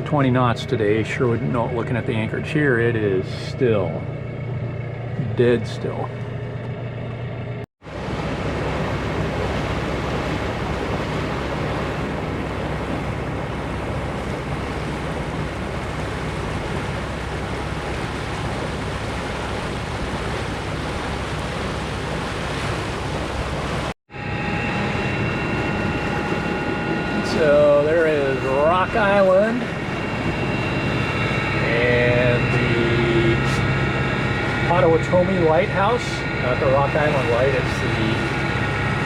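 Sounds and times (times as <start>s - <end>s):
low engine hum: 0.0s - 39.0s
steady rushing noise: 7.9s - 39.0s.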